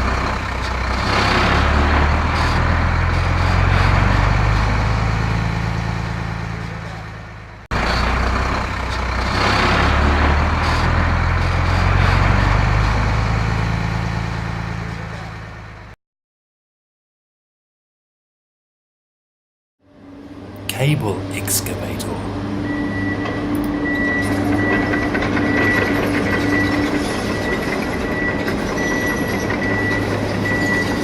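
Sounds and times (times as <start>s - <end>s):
diesel engine revving: 0.0s - 15.7s.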